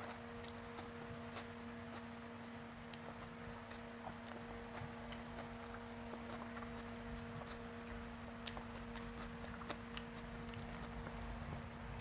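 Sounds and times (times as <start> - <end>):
close chewing of rice: 0.0 - 12.0
steady hum: 0.0 - 12.0.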